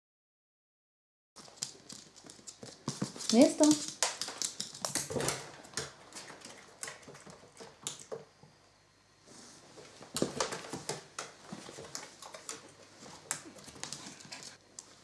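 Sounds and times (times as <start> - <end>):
dog claws tapping on floor: 1.4 - 8.3, 10.1 - 14.9.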